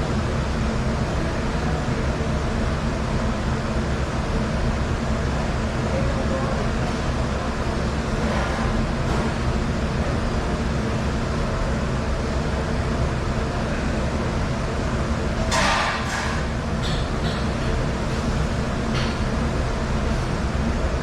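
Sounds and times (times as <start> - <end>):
dishwasher running: 5.9 - 13.0, 13.6 - 21.0.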